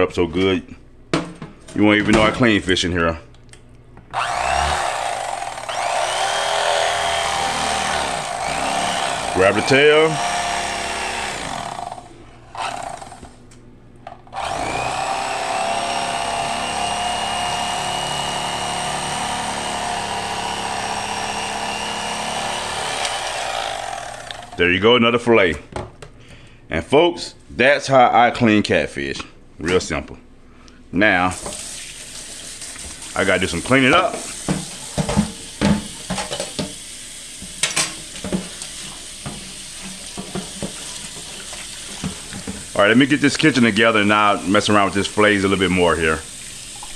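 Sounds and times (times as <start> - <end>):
electric knife motor whine: 4.1 - 13.4, 14.2 - 24.6, 42.0 - 46.9
steady hiss: 31.4 - 46.9
utensils clattering on counter: 34.1 - 36.8, 37.6 - 42.7.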